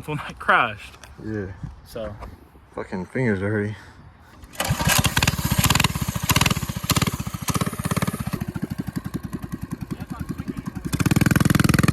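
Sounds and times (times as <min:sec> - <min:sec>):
small engine starting and idling: 0:04.4 - 0:11.9.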